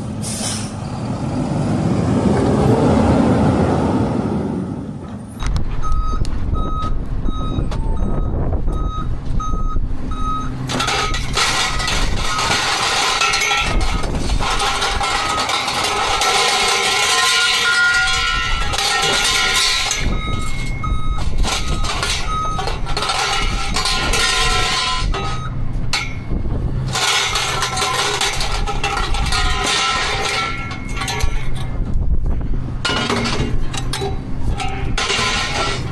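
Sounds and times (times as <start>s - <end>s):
dense mechanical noise: 0.0s - 35.9s
truck engine running: 0.0s - 35.9s
reversing alarm beeping: 5.8s - 11.4s, 19.3s - 25.6s.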